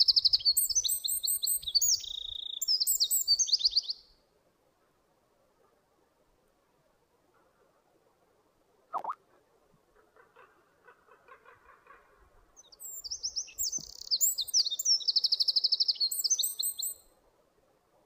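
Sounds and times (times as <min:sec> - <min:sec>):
songbird singing: 0:00.0 - 0:04.2, 0:08.9 - 0:09.2, 0:12.6 - 0:17.1
soft bird chattering: 0:09.0 - 0:09.2.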